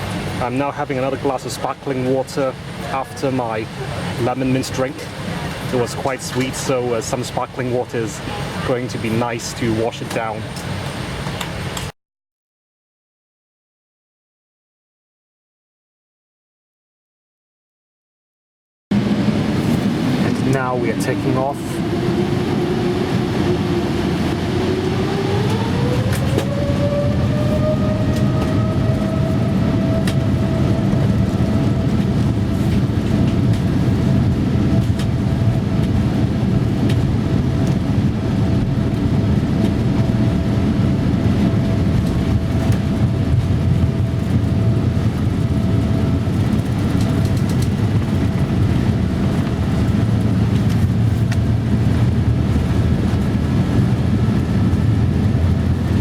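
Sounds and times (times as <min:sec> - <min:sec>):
jet engine whine: 0:00.0 - 0:11.9, 0:18.9 - 0:56.0
takeoff roll rumble: 0:18.9 - 0:56.0.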